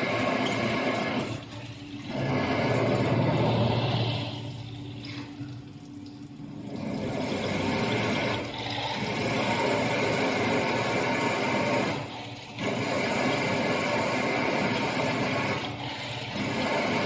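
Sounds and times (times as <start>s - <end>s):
drilling machine whirring: 7.0s - 17.0s.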